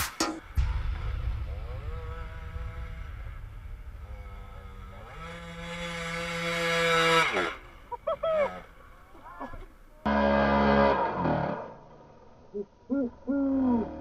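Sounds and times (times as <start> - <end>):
motorcycle engine revving high: 1.4 - 8.7.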